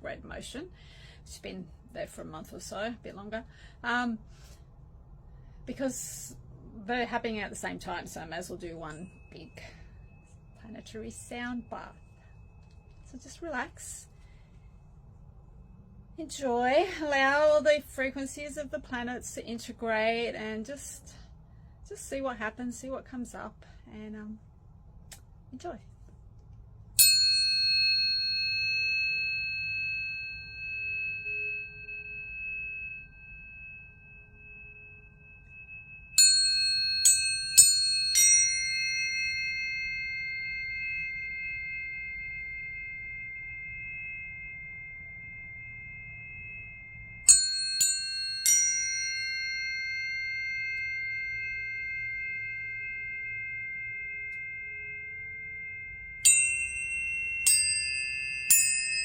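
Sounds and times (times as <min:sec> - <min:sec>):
tuning forks ringing: 0:07.2 - 0:17.8, 0:27.0 - 0:59.0.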